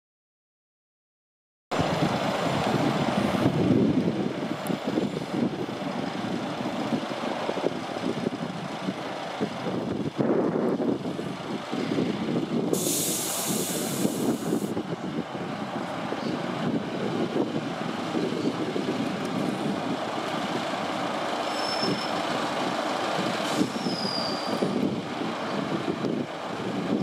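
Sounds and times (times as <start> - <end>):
diesel train engine rumble: 1.7 - 27.0
air brake hiss: 12.7 - 14.7, 23.5 - 24.5
faint high squeals: 21.4 - 22.2, 23.6 - 24.8.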